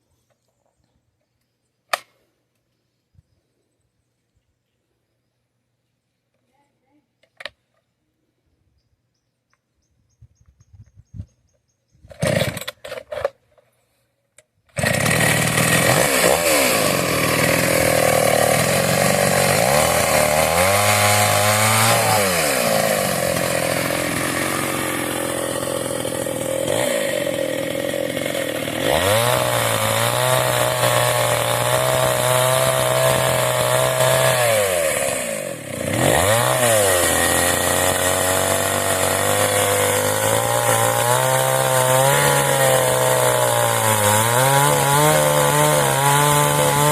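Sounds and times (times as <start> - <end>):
chainsaw engine revving: 12.1 - 13.3, 14.7 - 46.9.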